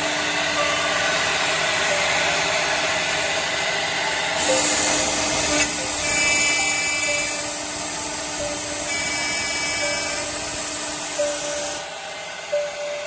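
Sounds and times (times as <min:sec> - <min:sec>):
router spindle whine and hiss: 0:00.0 - 0:13.0
high-pitched cutting squeal: 0:04.4 - 0:13.0.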